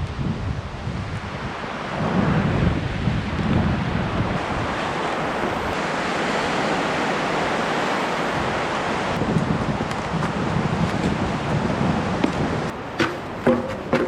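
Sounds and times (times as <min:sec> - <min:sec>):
wind buffeting microphone: 0:00.0 - 0:14.0
whitewater rushing in a river: 0:03.8 - 0:13.4.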